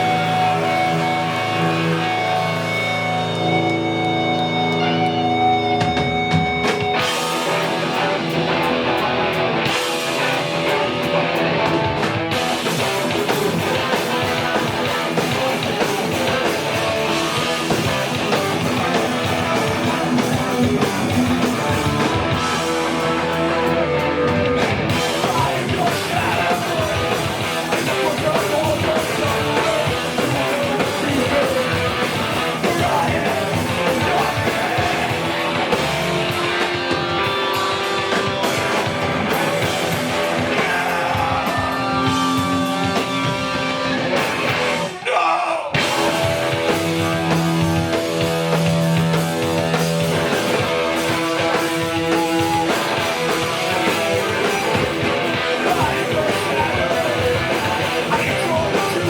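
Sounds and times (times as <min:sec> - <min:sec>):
bass guitar: 0:00.0 - 0:59.0
distorted electric guitars: 0:00.0 - 0:59.0
drums: 0:00.0 - 0:59.0
person singing: 0:23.1 - 0:35.5, 0:40.2 - 0:44.0, 0:51.2 - 0:59.0.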